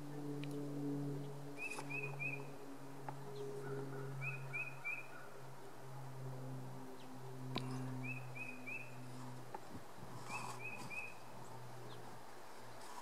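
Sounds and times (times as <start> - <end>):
steady low hum: 0.0 - 13.0
small birds chirping: 1.2 - 5.3, 7.0 - 9.4, 10.1 - 13.0.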